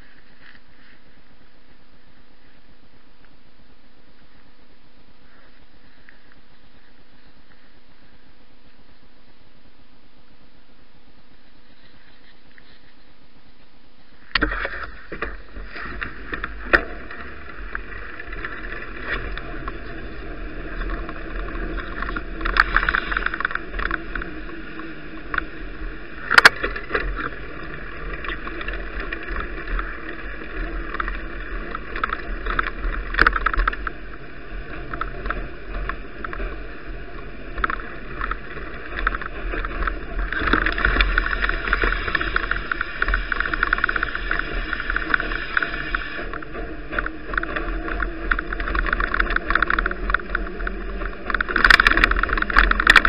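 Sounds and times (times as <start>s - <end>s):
bicycle tyres on snow: 0.0s - 9.4s, 10.9s - 53.0s
wind rumble on microphone: 11.3s - 53.0s
bicycle rattles and knocks: 14.3s - 53.0s.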